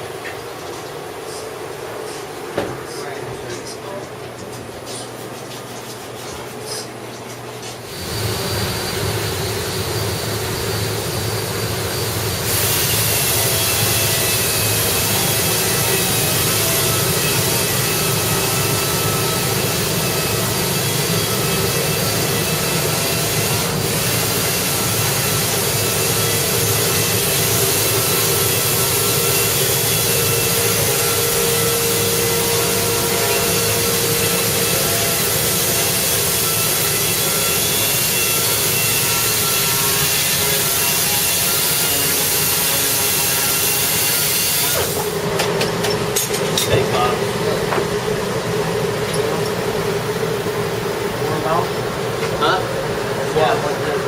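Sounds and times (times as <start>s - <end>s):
power tool whining: 7.9s - 50.3s.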